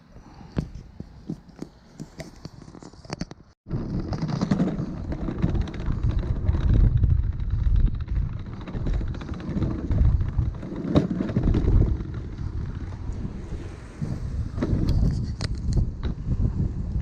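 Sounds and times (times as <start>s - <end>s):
gusty wind on microphone: 3.7s - 17.0s.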